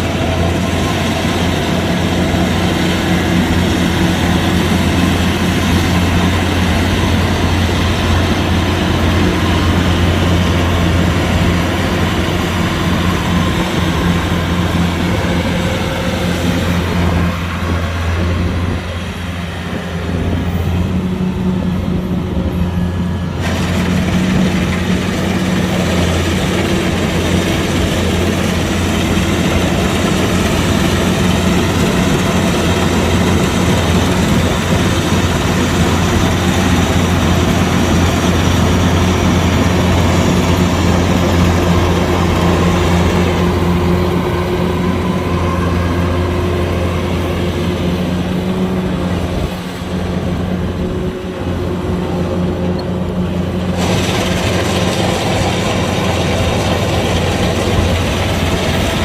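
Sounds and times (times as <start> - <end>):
diesel engine hum: 0.0 - 59.0
threshing machinery rushing: 23.2 - 59.0.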